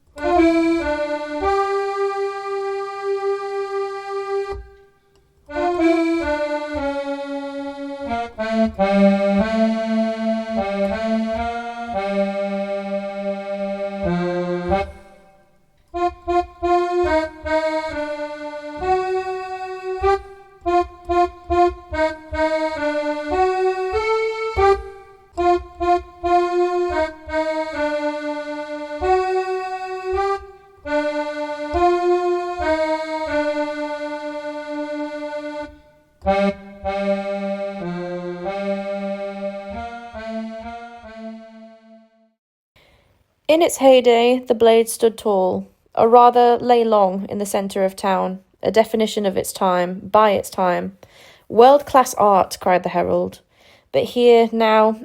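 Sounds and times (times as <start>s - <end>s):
accordion music: 0.0s - 42.4s.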